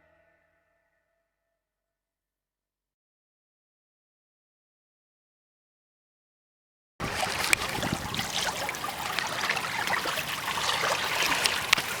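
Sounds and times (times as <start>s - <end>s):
small sharp splashes: 7.0s - 12.0s
water splashing against hull: 7.0s - 12.0s.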